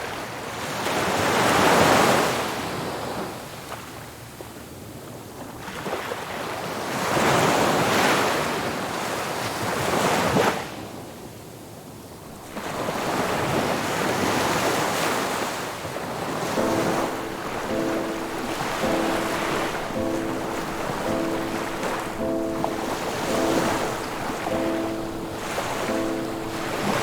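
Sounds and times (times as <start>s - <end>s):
soft music with held notes: 12.4s - 13.9s, 16.5s - 27.0s
ocean waves breaking: 12.4s - 14.3s, 16.6s - 27.0s.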